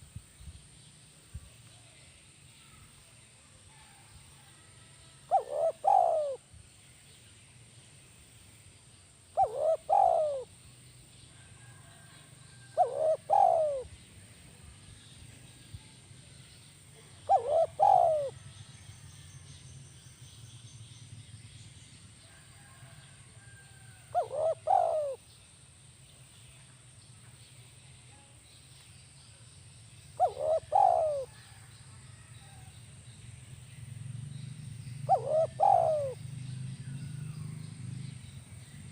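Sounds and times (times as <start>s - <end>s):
dove cooing: 5.3s - 6.4s, 9.3s - 10.5s, 12.6s - 13.9s, 17.0s - 18.4s, 24.1s - 25.2s, 30.2s - 31.6s, 35.0s - 36.2s.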